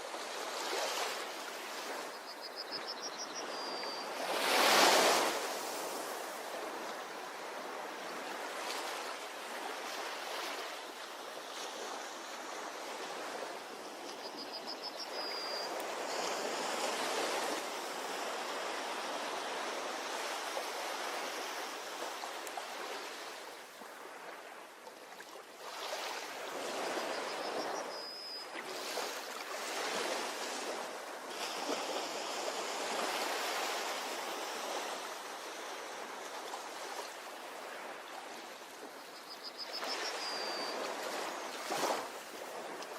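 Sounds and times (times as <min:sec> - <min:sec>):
ocean waves washing onto shore: 0:04.0 - 0:14.4.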